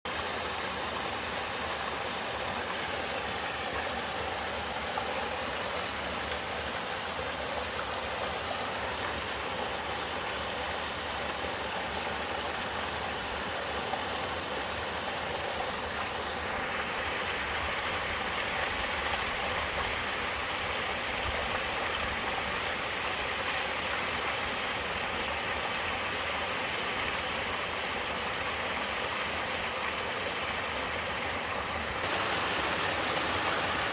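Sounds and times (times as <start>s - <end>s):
waterfall splashing and rushing: 32.0s - 33.9s.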